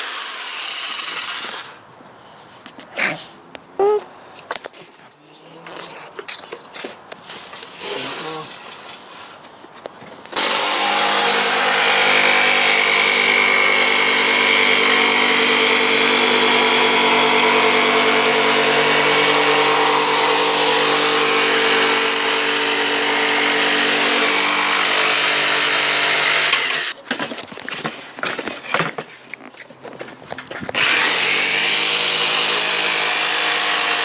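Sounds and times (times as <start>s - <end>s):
electric power tool cutting wood: 0.0s - 1.8s, 10.4s - 27.0s, 30.7s - 34.0s.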